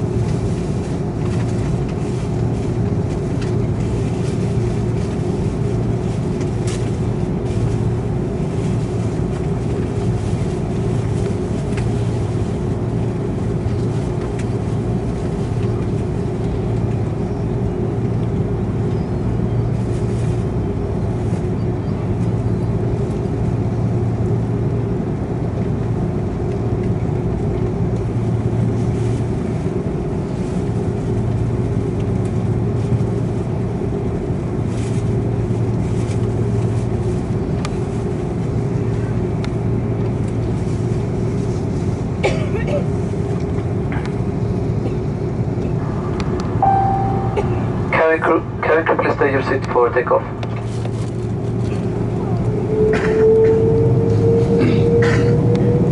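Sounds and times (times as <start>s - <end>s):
cabin air conditioning: 0.0s - 55.9s
jet engines humming at low power: 0.0s - 55.9s.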